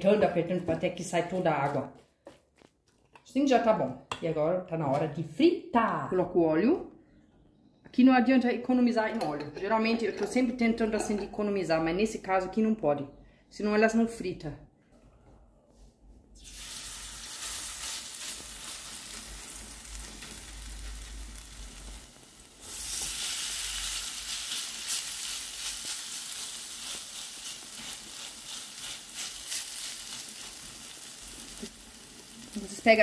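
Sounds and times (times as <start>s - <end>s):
potato mixture sizzling in oil: 16.4s - 33.0s.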